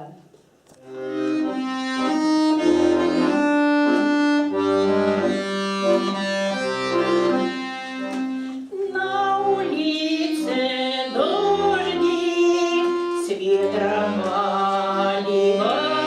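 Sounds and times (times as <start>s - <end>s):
accordion playing chords: 0.8s - 16.0s.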